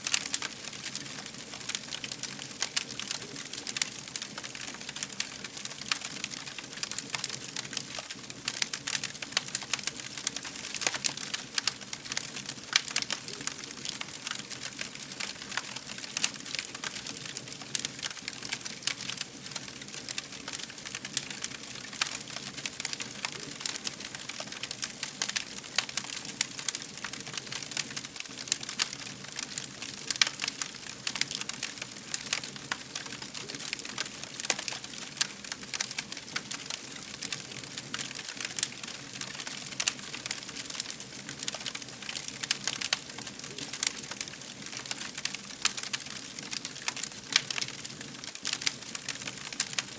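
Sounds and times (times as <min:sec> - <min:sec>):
fire crackling: 0:00.0 - 0:49.9.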